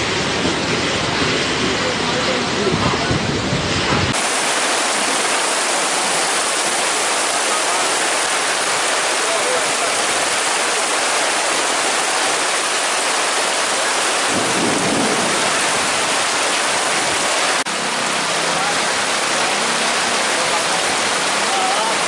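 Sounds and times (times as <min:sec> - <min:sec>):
heavy rain pouring: 0:00.0 - 0:22.0
low thunder rumble: 0:14.2 - 0:17.6.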